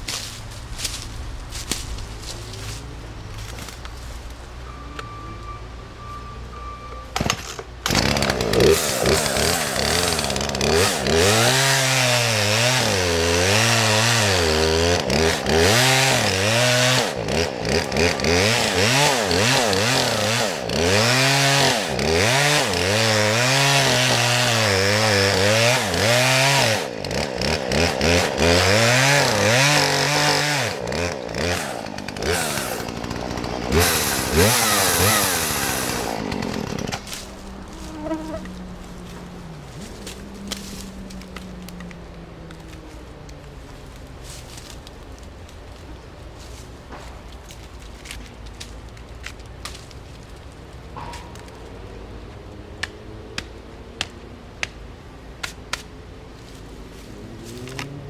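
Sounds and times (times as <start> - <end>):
chainsaw cutting wood: 7.2 - 42.0, 51.0 - 52.0.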